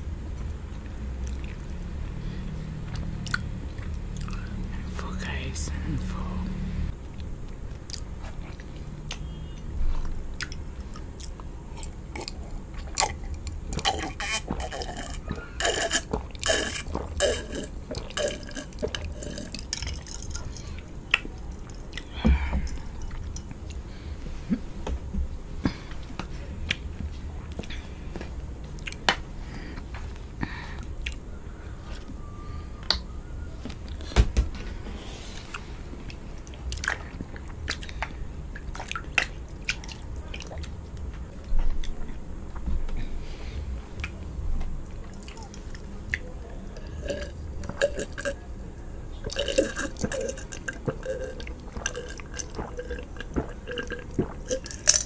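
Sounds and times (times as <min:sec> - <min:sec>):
wet chewing and mouth clicks: 0:00.3 - 0:01.9, 0:02.7 - 0:04.7, 0:06.9 - 0:23.9, 0:25.6 - 0:32.2, 0:32.8 - 0:34.0, 0:35.4 - 0:42.8, 0:44.0 - 0:55.0
gulping a drink: 0:10.4 - 0:20.6, 0:45.1 - 0:55.0.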